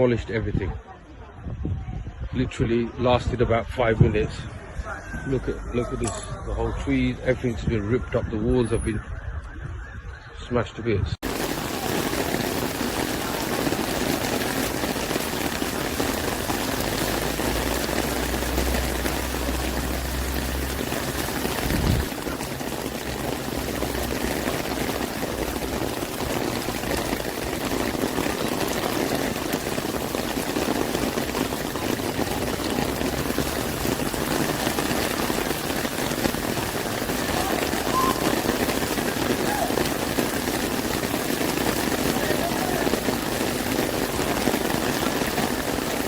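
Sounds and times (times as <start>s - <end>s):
heavy rain splashing: 11.2s - 46.0s.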